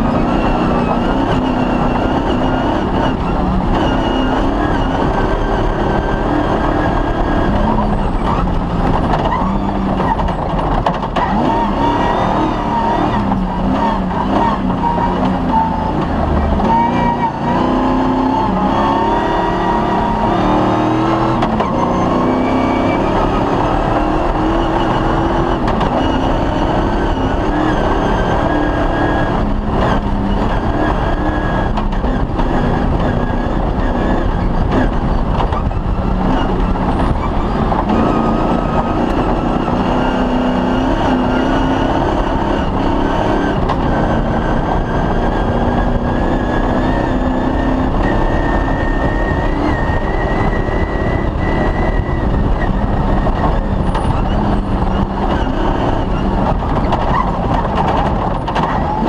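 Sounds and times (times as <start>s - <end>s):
rally car engine accelerating: 0.0s - 59.0s
rumble of driving over rough ground: 0.0s - 59.0s.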